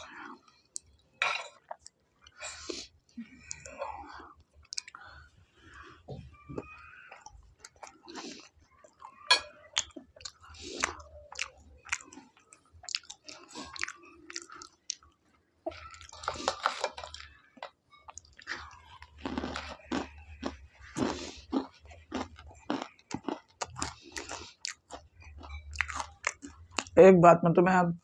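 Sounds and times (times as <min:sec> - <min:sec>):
man chewing crunchy food: 0:06.6 - 0:17.4, 0:18.0 - 0:26.9.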